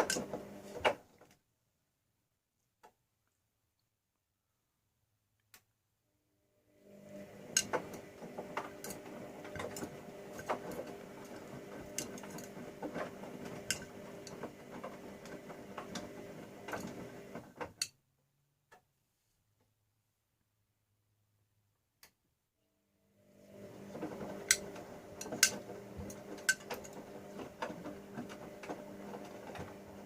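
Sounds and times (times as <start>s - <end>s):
washing machine motor hum: 0.0s - 1.2s, 6.7s - 17.8s, 23.0s - 30.0s.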